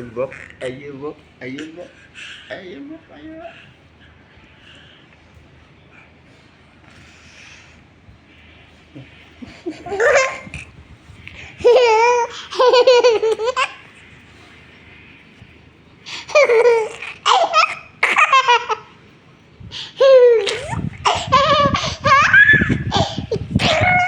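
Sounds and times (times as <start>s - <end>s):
young child laughing: 9.4s - 13.9s, 16.3s - 18.9s, 19.9s - 24.0s.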